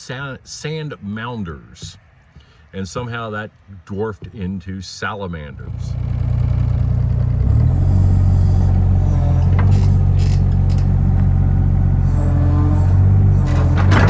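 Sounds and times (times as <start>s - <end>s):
diesel engine running: 5.6s - 14.0s.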